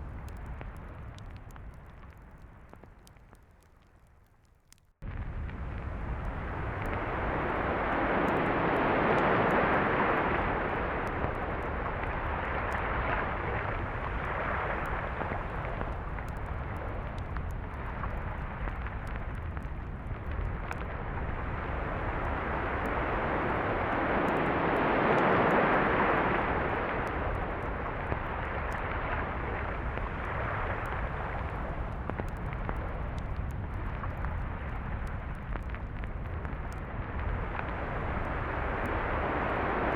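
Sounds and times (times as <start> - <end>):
ocean waves breaking on beach: 22.0 - 27.3.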